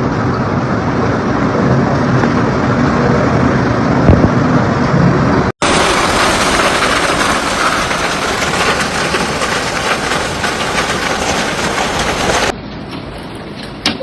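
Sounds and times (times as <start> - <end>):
hailstones striking surfaces: 5.6 - 12.5
heavy rain hissing: 5.6 - 12.5.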